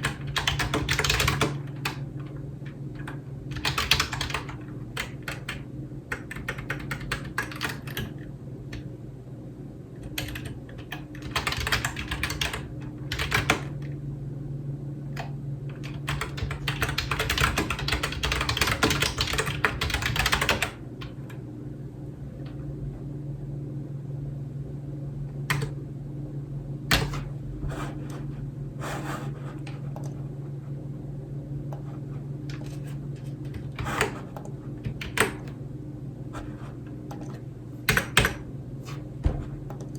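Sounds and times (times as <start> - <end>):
typing on computer keyboard: 0.0 - 2.0, 3.0 - 8.2, 10.0 - 13.8, 15.2 - 21.2, 25.5 - 25.8, 33.5 - 35.6, 37.1 - 38.4
steady low hum: 0.0 - 39.9.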